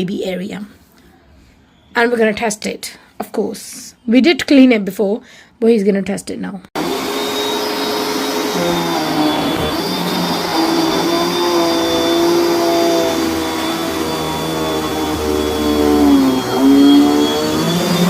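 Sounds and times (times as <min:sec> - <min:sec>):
vacuum cleaner running: 0:06.8 - 0:18.0.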